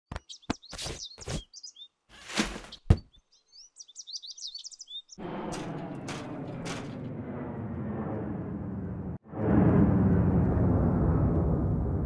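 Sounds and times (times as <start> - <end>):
birds twittering: 0.1 - 5.6.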